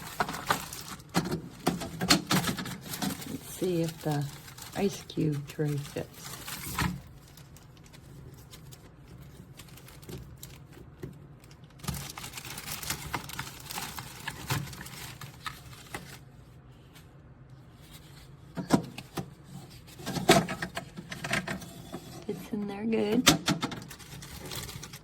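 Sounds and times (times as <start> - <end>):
plastic tray rustling and scraping: 0.0 - 11.0, 17.7 - 22.6.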